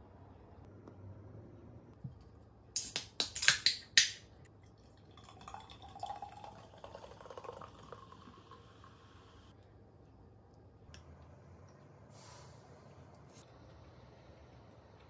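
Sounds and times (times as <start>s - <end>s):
soda pouring and fizzing: 4.6s - 9.5s.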